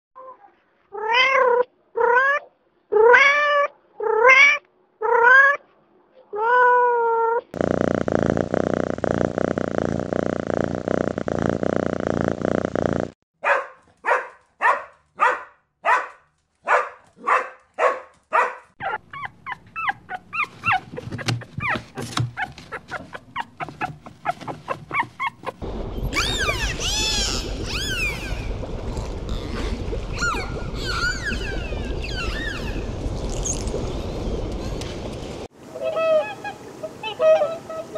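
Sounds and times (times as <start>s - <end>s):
cat purring: 7.6s - 13.2s
small dog barking: 13.4s - 19.0s
dolphins whistling underwater: 25.2s - 34.8s.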